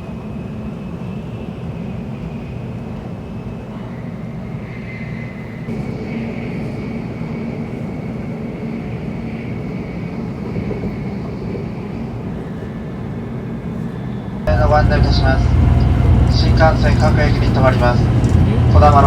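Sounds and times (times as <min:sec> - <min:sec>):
faint high whine: 0:14.5 - 0:19.0
train running rumble: 0:14.5 - 0:19.0.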